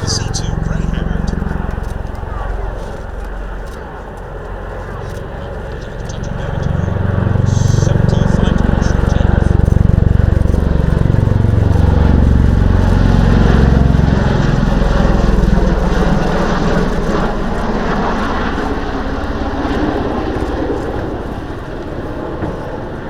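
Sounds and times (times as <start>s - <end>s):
tiltrotor aircraft flying by: 0.0s - 23.0s.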